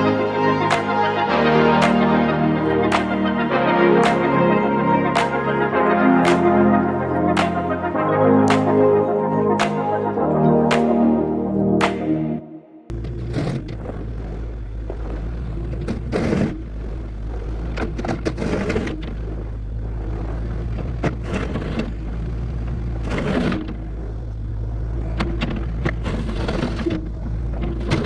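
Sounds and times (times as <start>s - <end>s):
diesel engine running: 12.9s - 28.0s
gravel crunching and scraping: 12.9s - 28.0s.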